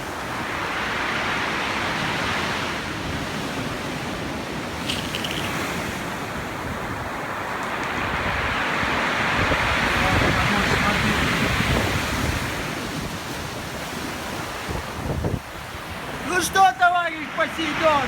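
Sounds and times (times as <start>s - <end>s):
stormy sea surf breaking: 0.0s - 18.0s
wind buffeting microphone: 2.9s - 16.2s.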